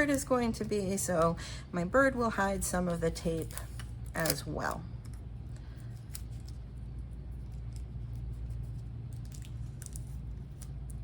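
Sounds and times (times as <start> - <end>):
steady low hum: 0.0 - 11.0
tape and paper crinkling: 3.2 - 11.0.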